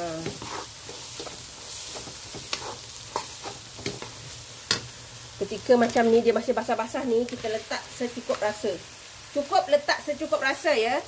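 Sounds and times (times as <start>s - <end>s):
wooden spatula scraping pan: 0.0s - 4.2s
food sizzling in oil: 0.0s - 11.0s.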